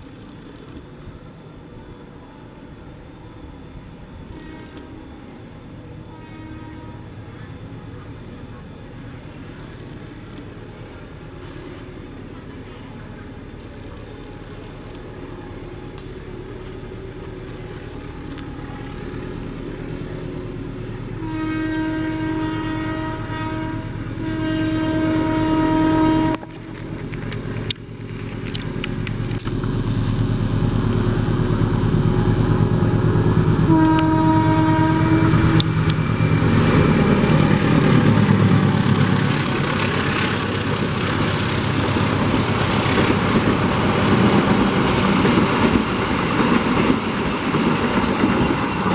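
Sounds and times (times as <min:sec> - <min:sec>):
train rumble and wheel noise: 0:00.0 - 0:48.9
train horn blasts: 0:03.8 - 0:08.1, 0:14.2 - 0:26.7, 0:29.8 - 0:41.0.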